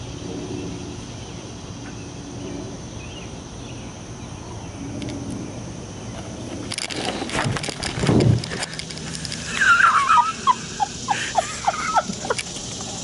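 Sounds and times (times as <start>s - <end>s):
rustling and handling noise: 6.6s - 9.5s.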